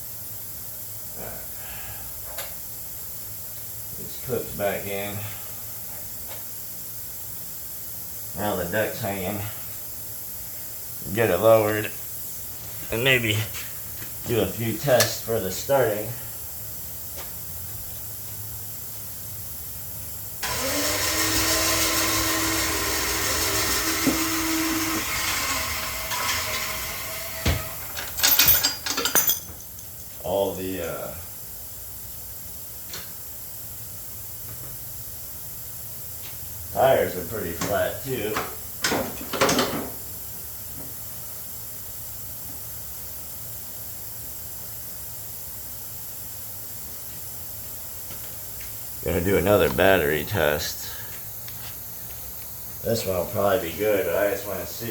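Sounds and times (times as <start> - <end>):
small motor whining: 20.4 - 27.8.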